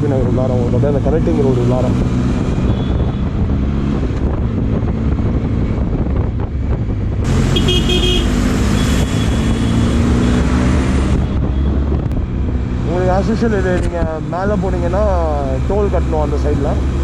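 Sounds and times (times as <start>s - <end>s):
road and wind noise: 0.0s - 17.0s
vehicle horns honking: 2.7s - 3.3s, 7.4s - 9.8s.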